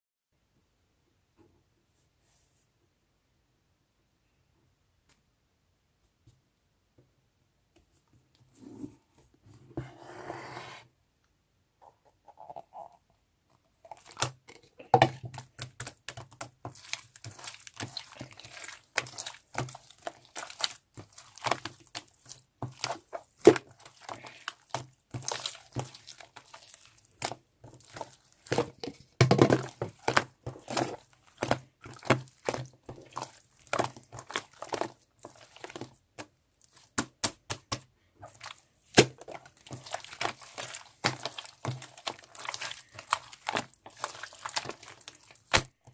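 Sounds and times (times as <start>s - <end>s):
rustling and crinkling: 13.6s - 45.9s.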